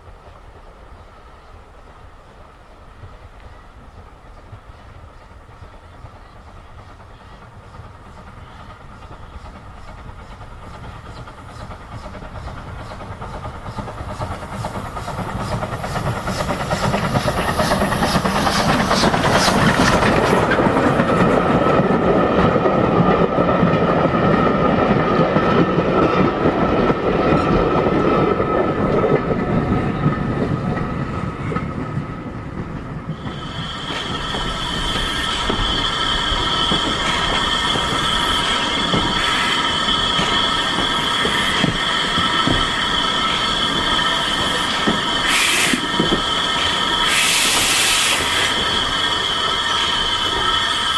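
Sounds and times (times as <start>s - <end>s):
train wheels rumbling on rails: 0.0s - 50.9s
wheels clacking over rail joints: 5.5s - 48.9s
high metallic wheel squeal: 33.2s - 50.9s.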